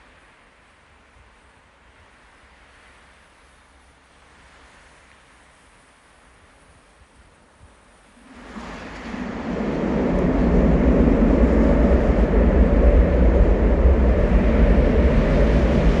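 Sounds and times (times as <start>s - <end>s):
jet engines roaring: 8.2s - 16.0s.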